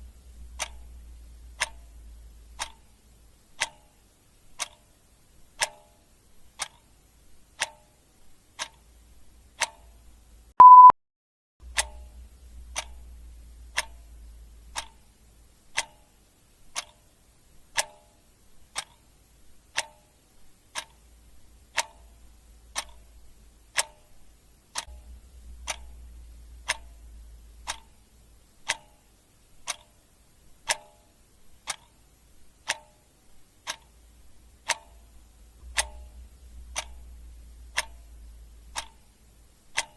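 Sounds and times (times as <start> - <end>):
clock ticking: 0.0 - 10.9, 11.6 - 39.9
short beep: 10.6 - 11.0.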